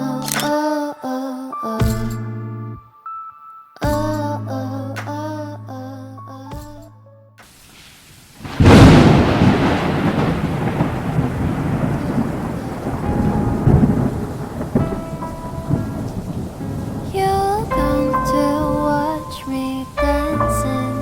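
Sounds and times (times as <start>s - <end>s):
rain: 7.4s - 21.0s
thunderclap rolling: 8.4s - 21.0s.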